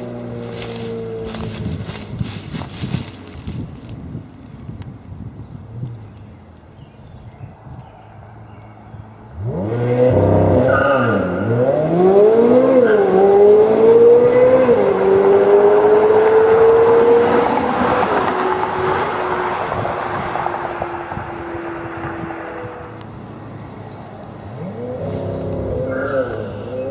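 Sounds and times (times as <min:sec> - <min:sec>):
car engine revving through upshifts: 0:09.4 - 0:20.5, 0:24.4 - 0:26.9.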